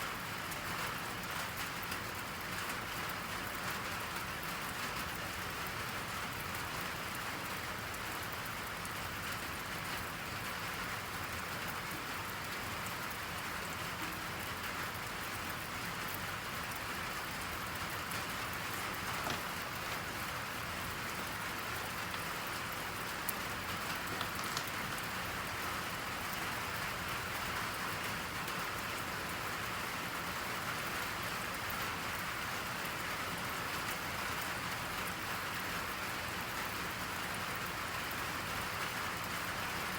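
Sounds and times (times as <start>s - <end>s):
steady rain hiss: 0.0s - 39.9s
faint drip ticks: 0.7s - 35.5s.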